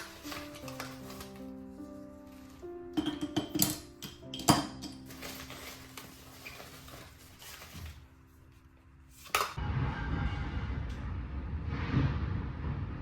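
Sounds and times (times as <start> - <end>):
soft background music: 0.0 - 13.0
containers clinking and tapping: 3.0 - 5.8
steady rushing noise: 9.6 - 13.0.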